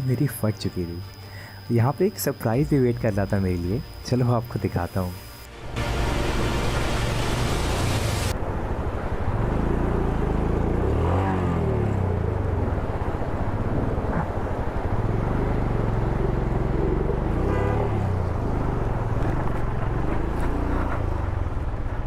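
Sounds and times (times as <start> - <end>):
hissing rush: 4.9 - 8.4.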